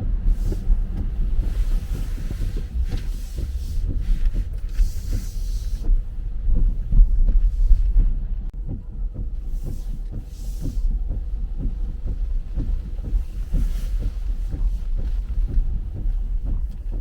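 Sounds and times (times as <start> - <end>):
car tyre road rumble: 0.0 - 17.0
soft rhythmic thumps: 0.0 - 17.0
road hiss: 0.2 - 6.2.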